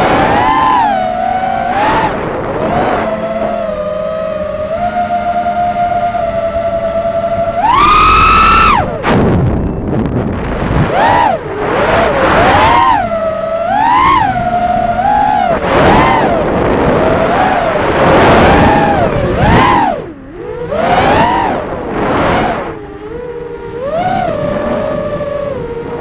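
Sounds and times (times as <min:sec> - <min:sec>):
drone motors whining: 0:00.0 - 0:26.0.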